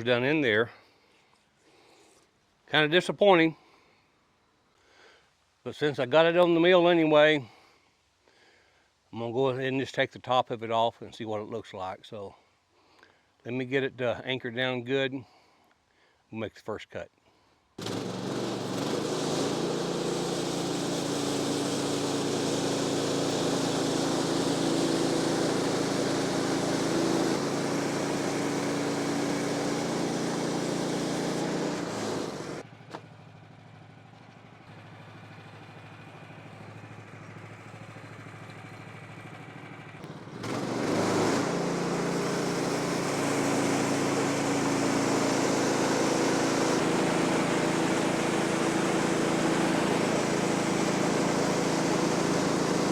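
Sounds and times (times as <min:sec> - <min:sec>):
sawmill gasoline engine running: 0:17.8 - 0:52.9.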